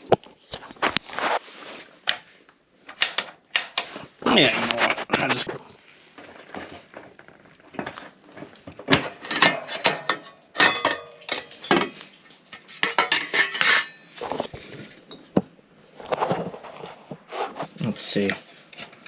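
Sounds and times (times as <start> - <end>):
hard objects clinking and clattering: 2.9 - 16.5.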